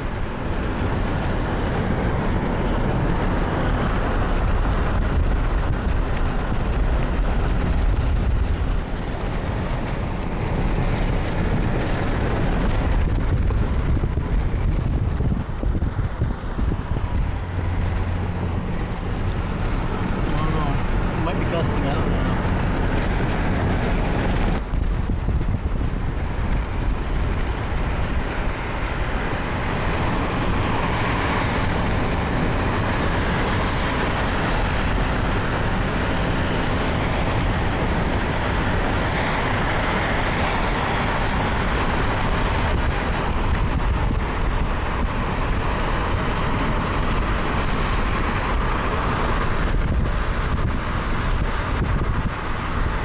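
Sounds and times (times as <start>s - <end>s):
car road noise: 0.0s - 53.0s
wind: 0.0s - 53.0s.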